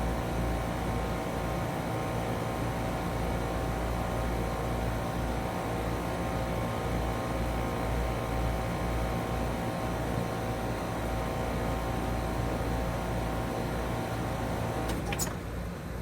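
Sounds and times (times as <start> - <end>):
heat pump unit humming: 0.0 - 16.0.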